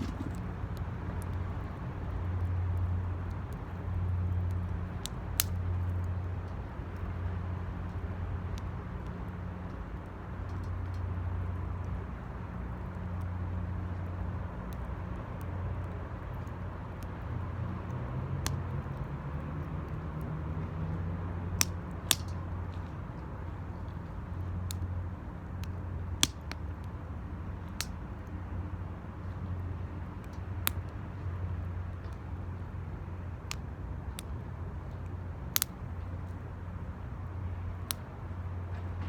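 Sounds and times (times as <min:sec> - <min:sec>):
wood fire crackling pops: 0:00.0 - 0:00.8.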